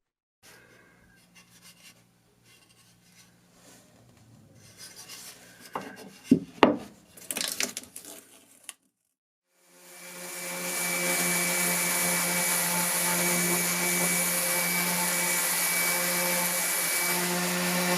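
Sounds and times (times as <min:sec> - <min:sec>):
hand tool scraping and rubbing: 0:00.5 - 0:03.9, 0:04.5 - 0:06.5.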